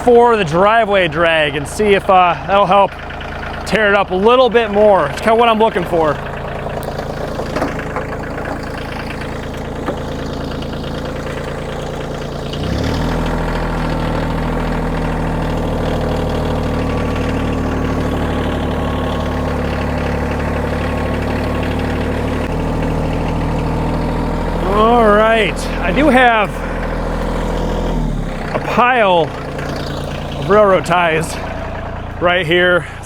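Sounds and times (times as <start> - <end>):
tractor diesel engine revving: 0.0 - 33.0.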